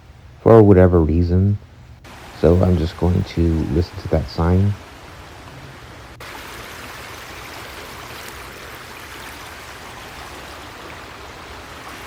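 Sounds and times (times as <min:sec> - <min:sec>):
creek water rushing: 0:02.0 - 0:12.0.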